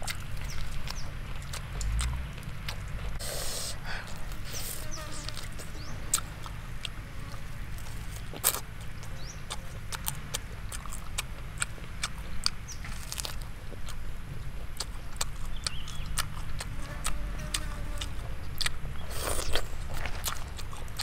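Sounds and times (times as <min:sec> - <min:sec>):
lip smacks: 0:00.0 - 0:07.0
low steady rumble: 0:00.0 - 0:21.0
person chewing: 0:00.0 - 0:21.0
bird chirping faintly: 0:15.4 - 0:16.2.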